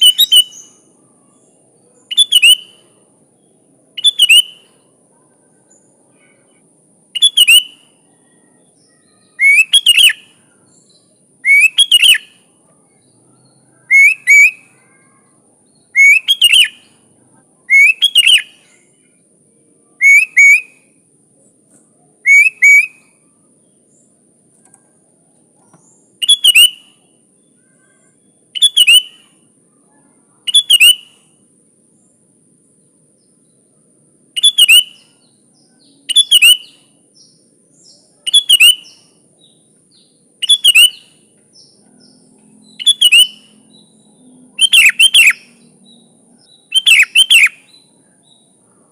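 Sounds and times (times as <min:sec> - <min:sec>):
bird singing: 0:00.0 - 0:48.9
faint high-pitched hiss: 0:00.0 - 0:48.9.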